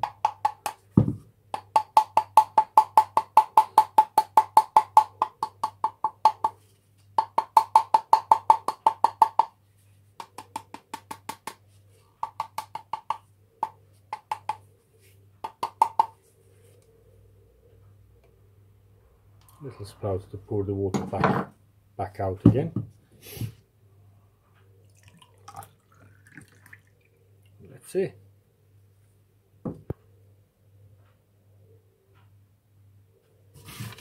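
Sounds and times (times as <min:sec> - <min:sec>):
hammer tapping on sheet lead: 0:07.2 - 0:09.6.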